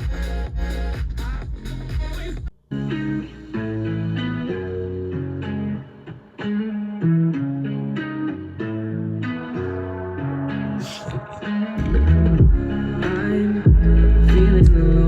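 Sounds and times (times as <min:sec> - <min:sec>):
electronic music with plucked melody: 0:02.7 - 0:15.0.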